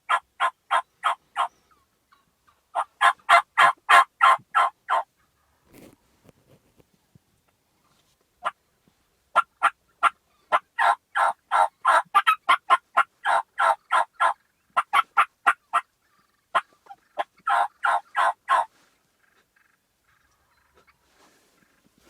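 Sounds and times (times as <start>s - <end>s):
turkey yelping: 0.1s - 5.5s, 9.4s - 18.7s.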